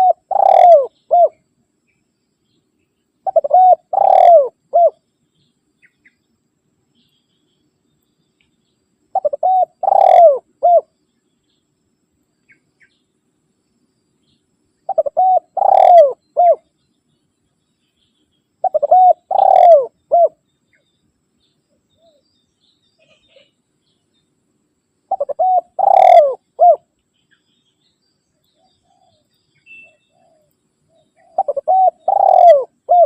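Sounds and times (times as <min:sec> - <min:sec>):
dove cooing: 0:00.0 - 0:01.4, 0:03.2 - 0:05.0, 0:09.1 - 0:10.9, 0:14.9 - 0:16.7, 0:18.6 - 0:20.4, 0:25.1 - 0:26.9, 0:29.9 - 0:33.0.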